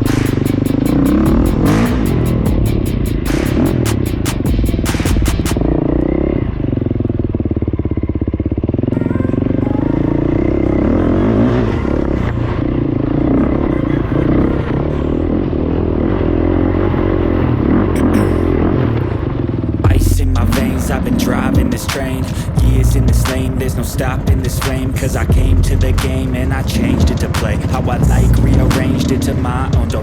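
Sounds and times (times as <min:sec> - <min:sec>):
music with a beat: 0:00.0 - 0:05.7, 0:19.9 - 0:23.6, 0:24.3 - 0:26.4, 0:27.0 - 0:30.0
off-road vehicle engine revving: 0:00.0 - 0:30.0.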